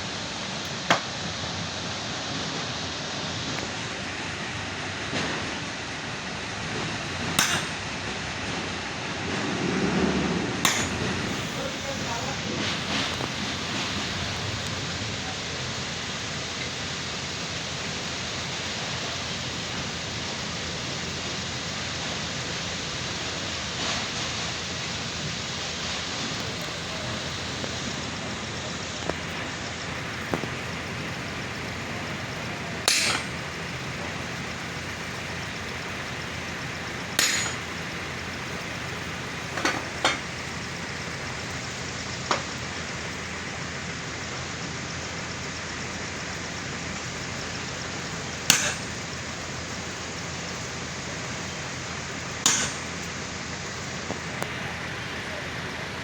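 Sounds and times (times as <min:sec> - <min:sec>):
workshop noise: 0:00.6 - 0:01.2, 0:06.5 - 0:20.7, 0:22.1 - 0:43.5, 0:47.8 - 0:49.4, 0:50.3 - 0:55.6
hammer blows on steel: 0:48.5 - 0:49.0.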